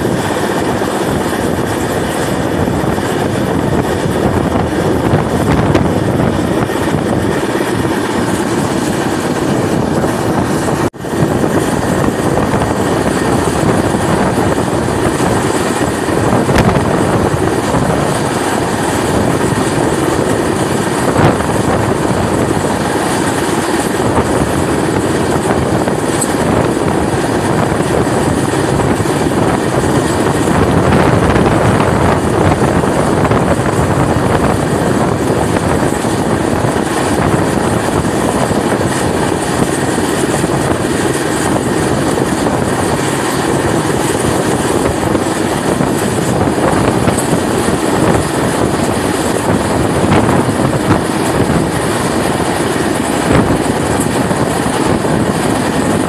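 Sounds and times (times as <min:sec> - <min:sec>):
train wheels rumbling on rails: 0:00.0 - 0:56.0
wind rushing past microphone: 0:00.0 - 0:56.0.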